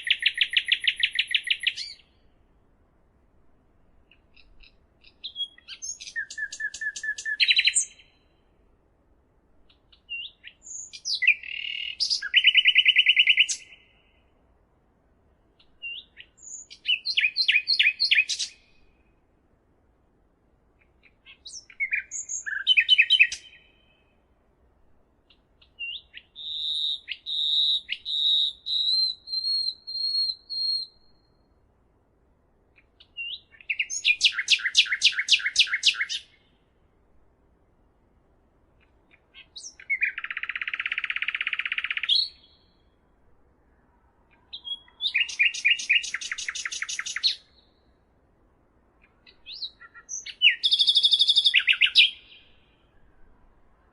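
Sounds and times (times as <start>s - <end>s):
songbird singing trills: 0.0s - 2.4s, 4.0s - 8.4s, 9.6s - 14.3s, 15.6s - 19.1s, 20.8s - 24.2s, 25.3s - 31.6s, 32.7s - 36.7s, 38.8s - 43.0s, 44.3s - 48.0s, 49.0s - 53.1s.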